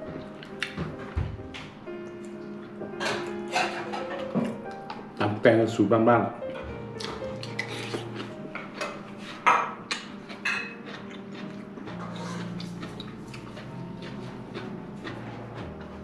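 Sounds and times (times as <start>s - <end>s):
person chewing food: 0.1s - 1.2s, 7.0s - 16.0s.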